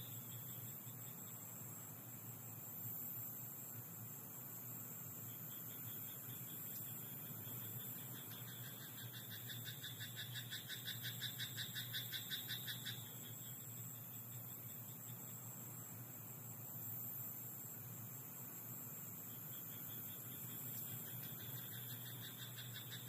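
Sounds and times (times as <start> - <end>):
steady background hiss: 0.0 - 23.0
fainter pulsed frog call: 5.2 - 15.4, 19.3 - 23.0.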